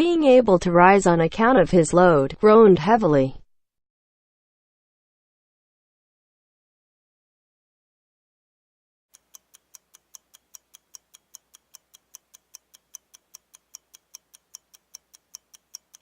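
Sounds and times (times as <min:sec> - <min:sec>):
clock ticking: 0:09.1 - 0:16.0.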